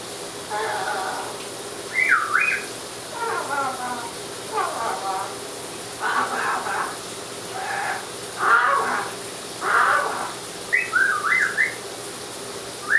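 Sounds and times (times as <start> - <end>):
running shower: 0.0 - 12.9
parrot raspy calls: 0.5 - 11.8
parrot whistles: 1.9 - 3.5, 9.7 - 11.8.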